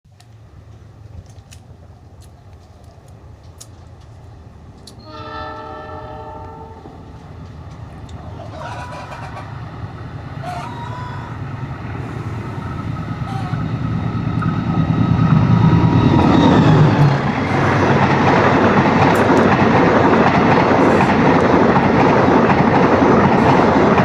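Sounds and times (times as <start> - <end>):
diesel locomotive engine rumble: 0.1 - 24.0
locomotive horn: 5.0 - 7.1.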